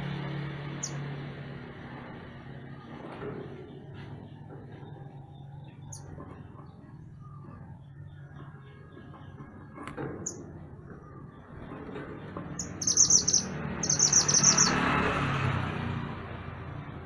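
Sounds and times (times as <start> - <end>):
songbird singing: 0.8 - 1.0, 3.7 - 15.0.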